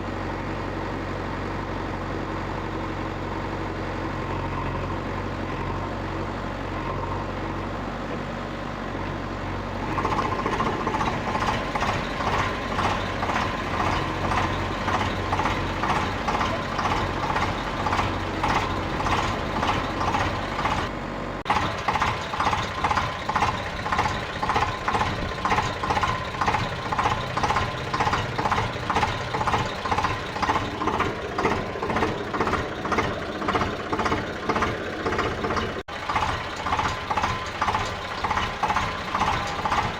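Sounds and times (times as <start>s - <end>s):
machine motor running: 10.0s - 20.9s.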